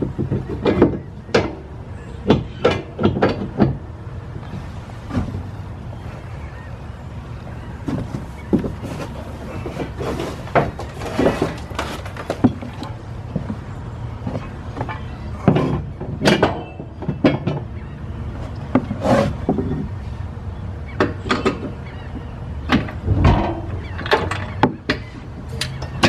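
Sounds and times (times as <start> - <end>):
low rumble: 22.9 - 24.3.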